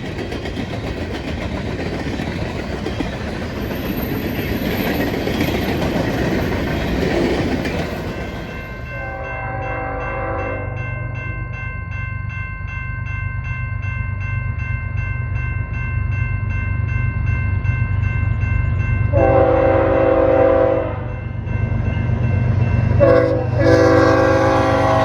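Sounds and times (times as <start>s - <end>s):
crossing warning bell ringing: 0.8s - 25.0s
locomotive horn blasts: 8.9s - 10.8s, 19.1s - 21.1s, 23.0s - 25.0s.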